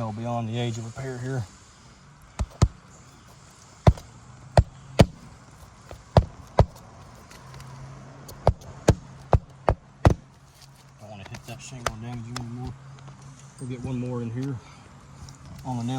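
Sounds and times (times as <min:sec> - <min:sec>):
hammer striking roofing nails: 0:02.4 - 0:02.8, 0:03.9 - 0:05.3, 0:05.9 - 0:06.8, 0:08.3 - 0:10.3.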